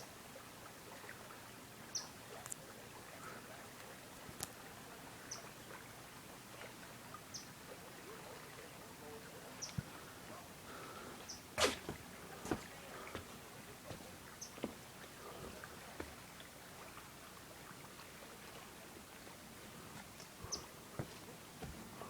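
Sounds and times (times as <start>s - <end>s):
small bird chirping: 1.9s - 2.1s, 5.3s - 5.5s
steady hiss: 10.1s - 13.2s.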